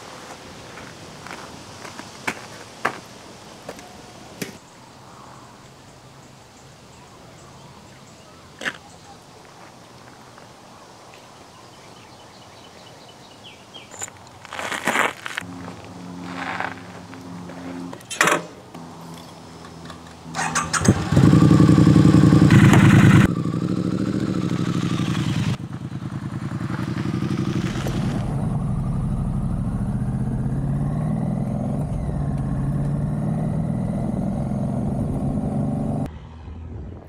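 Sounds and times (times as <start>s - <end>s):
motorcycle engine revving: 19.8s - 36.6s.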